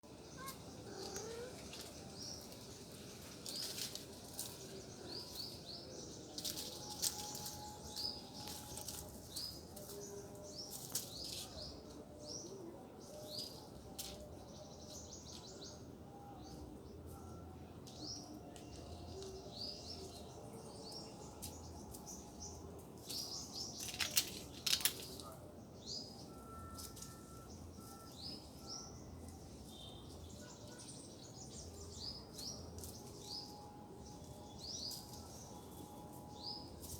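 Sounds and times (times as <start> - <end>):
small songbirds chirping: 0.0 - 36.9
sharp clicks and rustles: 23.8 - 25.3.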